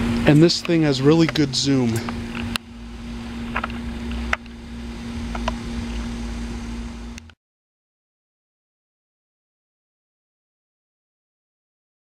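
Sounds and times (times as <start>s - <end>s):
heat pump humming: 0.0s - 7.4s.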